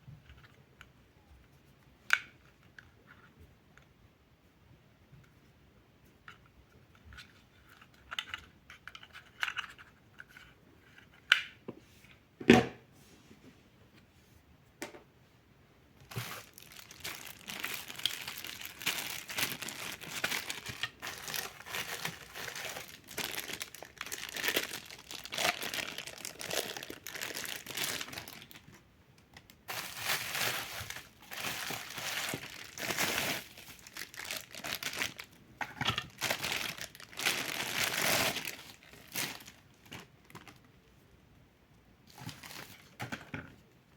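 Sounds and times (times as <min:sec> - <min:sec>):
packaging crinkling: 0:16.0 - 0:28.8, 0:29.6 - 0:40.7, 0:42.1 - 0:43.0.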